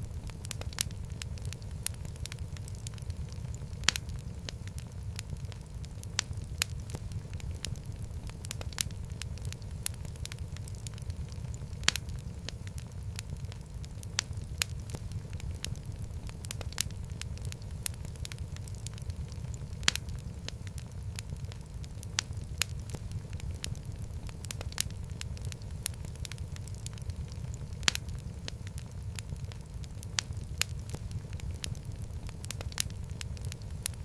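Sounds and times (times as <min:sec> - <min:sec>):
wood fire crackling: 0:00.0 - 0:34.0
loud fire pops: 0:00.1 - 0:34.0.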